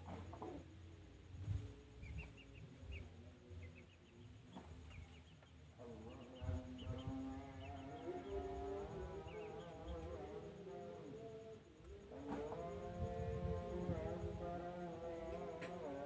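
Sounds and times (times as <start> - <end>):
small birds chirping: 1.9 - 10.3.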